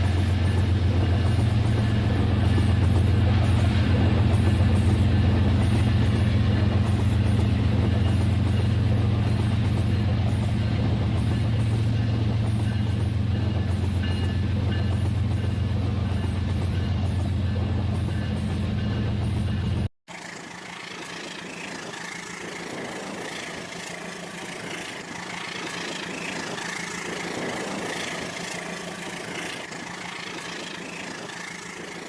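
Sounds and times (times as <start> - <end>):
toy train electric motor humming: 20.1 - 32.0.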